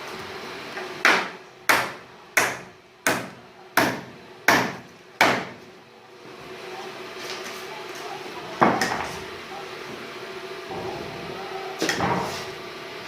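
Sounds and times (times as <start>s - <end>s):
hammer striking wood: 1.0s - 5.6s.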